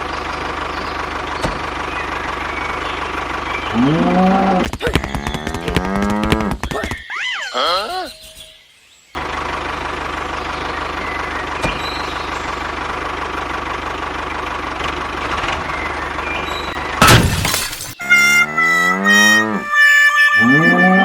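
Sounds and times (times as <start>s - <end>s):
engine-like running noise: 0.0s - 6.6s, 9.2s - 21.0s
loud crash: 17.0s - 18.0s.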